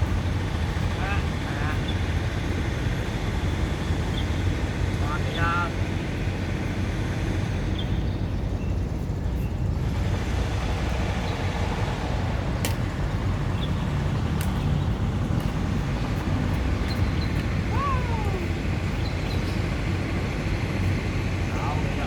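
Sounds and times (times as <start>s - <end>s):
wind buffeting microphone: 0.0s - 22.0s
sharp clicks: 12.6s - 13.0s.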